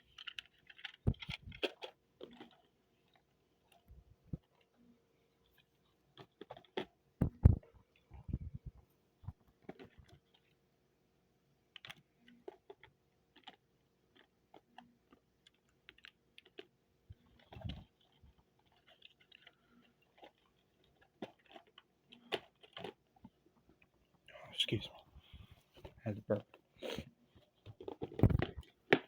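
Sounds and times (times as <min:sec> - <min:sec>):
plastic model train clicks: 0:00.0 - 0:02.6.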